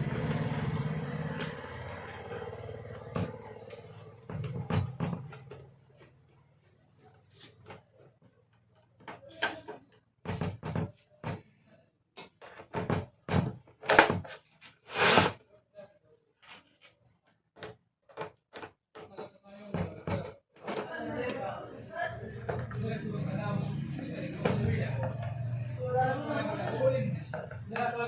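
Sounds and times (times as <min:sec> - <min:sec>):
plastic heater parts knocking: 0:02.2 - 0:05.7, 0:09.0 - 0:11.5, 0:17.6 - 0:20.9
plastic scraping: 0:12.5 - 0:15.4.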